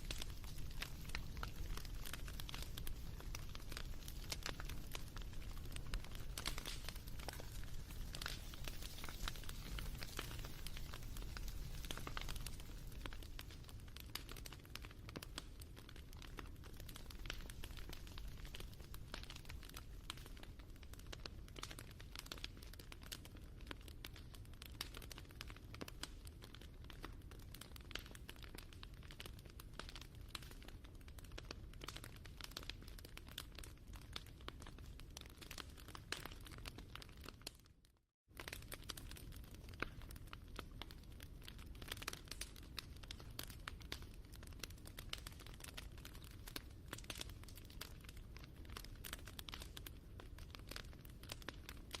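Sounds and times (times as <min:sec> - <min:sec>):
wood fire crackling: 0:00.0 - 0:37.7, 0:38.3 - 0:52.0.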